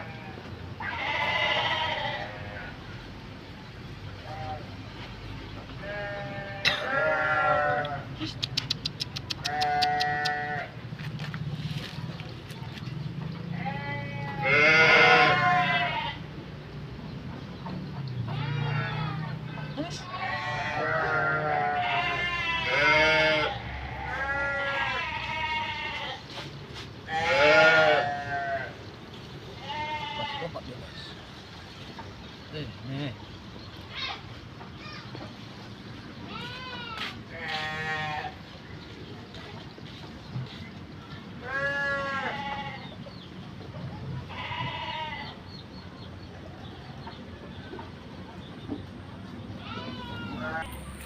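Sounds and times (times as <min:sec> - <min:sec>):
goat or sheep bleating: 0:00.0 - 0:02.7, 0:05.8 - 0:08.3, 0:09.2 - 0:10.8, 0:13.5 - 0:16.3, 0:18.3 - 0:26.3, 0:27.1 - 0:28.8, 0:29.6 - 0:30.7, 0:36.3 - 0:38.4, 0:41.4 - 0:43.0, 0:44.2 - 0:45.4, 0:49.6 - 0:50.7.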